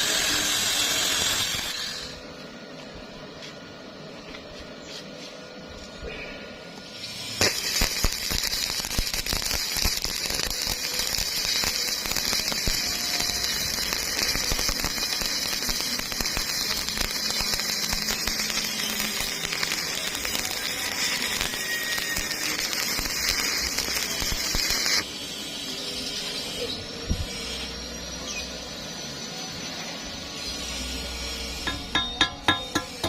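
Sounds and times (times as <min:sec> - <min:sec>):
welding arc crackling: 0:00.0 - 0:02.2, 0:06.8 - 0:26.2, 0:30.3 - 0:33.0.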